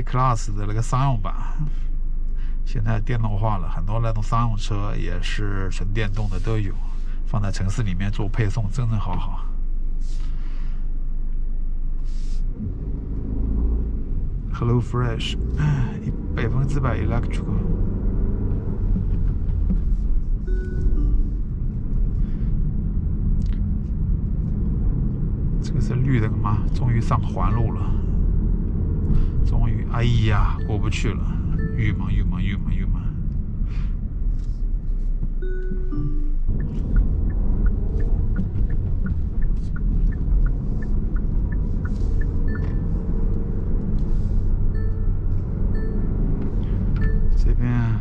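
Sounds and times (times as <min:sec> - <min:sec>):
road and engine rumble: 0:00.0 - 0:48.0
turn signal ticking: 0:15.3 - 0:22.2, 0:23.4 - 0:33.6, 0:35.1 - 0:48.0
two-note electronic tone: 0:20.5 - 0:21.4, 0:35.4 - 0:36.5.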